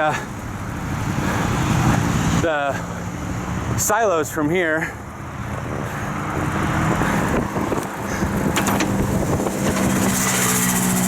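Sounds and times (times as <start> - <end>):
road traffic passing: 0.0 - 11.0
vehicle engine hum: 0.0 - 11.0
wind rushing over microphone: 5.3 - 11.0.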